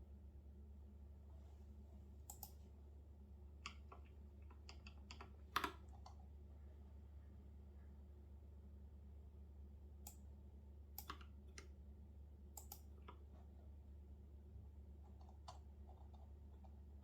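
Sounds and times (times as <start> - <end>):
low steady hum: 0.0 - 17.0
computer keyboard keystrokes: 2.3 - 2.6, 3.6 - 6.2, 11.0 - 11.7, 12.6 - 13.2.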